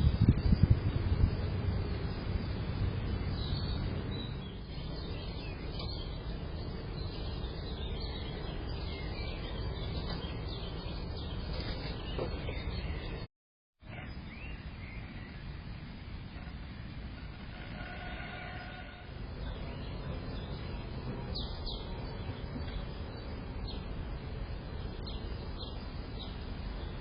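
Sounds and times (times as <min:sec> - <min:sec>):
small birds chirping: 0:00.0 - 0:13.3, 0:19.3 - 0:27.0
outdoor background hiss: 0:00.0 - 0:27.0.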